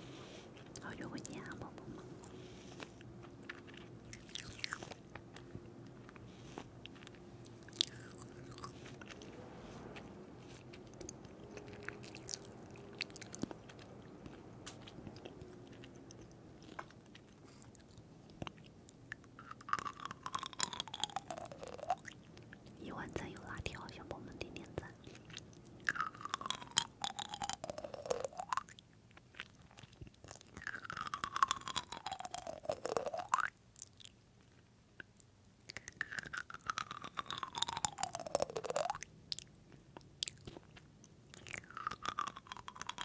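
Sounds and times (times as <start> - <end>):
faint steady hum: 0.0 - 43.0
person chewing crunchy food: 0.0 - 43.0.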